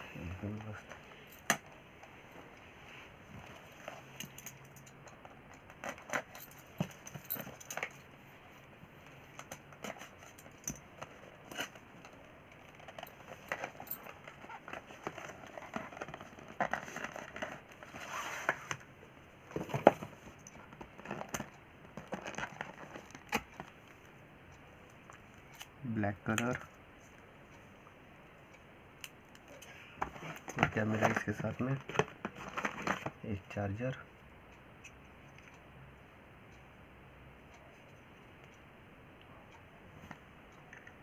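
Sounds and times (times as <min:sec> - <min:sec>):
packaging rustling: 0:12.6 - 0:18.8, 0:19.6 - 0:23.5.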